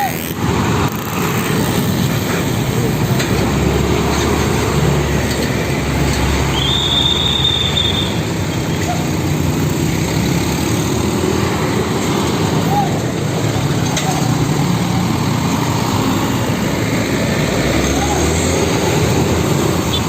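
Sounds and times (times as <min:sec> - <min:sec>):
heavy road traffic rumble: 0:00.0 - 0:20.0
high steady squeal: 0:06.4 - 0:08.3.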